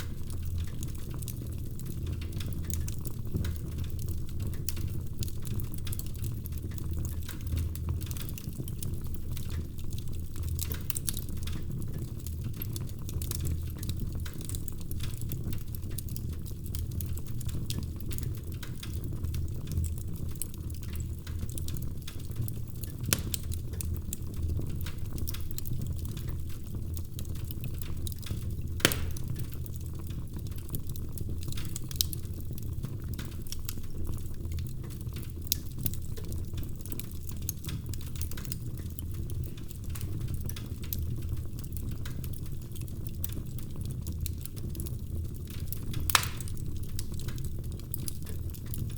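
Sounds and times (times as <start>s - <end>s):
fire crackling and popping: 0.0s - 48.9s
fire flames rumbling: 0.0s - 48.9s.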